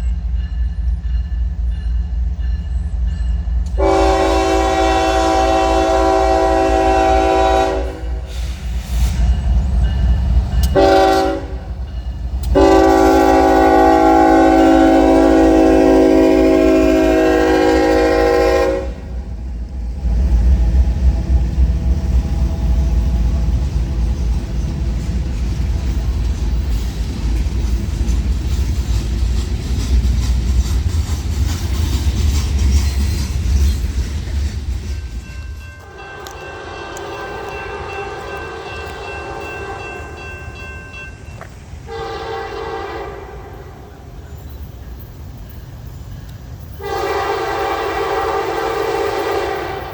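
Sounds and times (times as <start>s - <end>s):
train rumbling past: 0.0s - 49.9s
locomotive air horn blasts: 3.8s - 8.6s, 10.7s - 11.8s, 12.4s - 19.3s, 35.8s - 40.2s, 41.9s - 43.7s, 46.8s - 49.9s.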